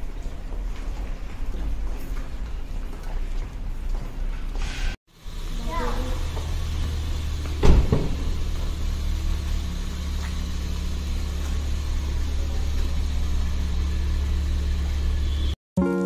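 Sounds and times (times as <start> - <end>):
car engine idling: 5.1 - 15.6
sharp thump: 7.5 - 8.4.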